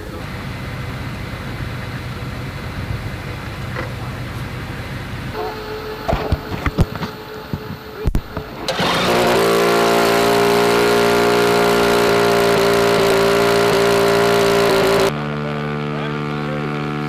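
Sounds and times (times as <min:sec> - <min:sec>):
drone engine running: 0:00.0 - 0:17.0.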